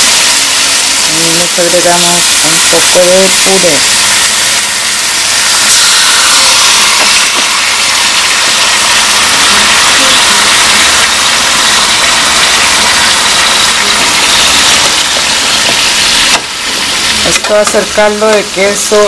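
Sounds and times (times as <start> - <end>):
potatoes sizzling in oil: 0.0 - 19.0.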